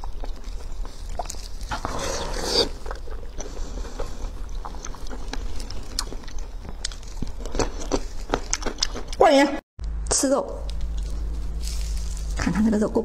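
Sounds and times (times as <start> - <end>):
person chewing and crunching: 0.0 - 9.2, 10.6 - 12.7
low hum: 9.8 - 13.0.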